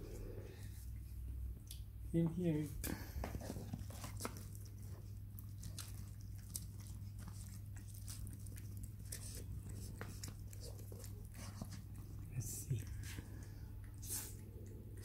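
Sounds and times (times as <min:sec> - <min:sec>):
steady low hum: 0:00.0 - 0:15.0
person chewing food: 0:03.3 - 0:15.0
food picked apart in paper box: 0:03.4 - 0:13.4.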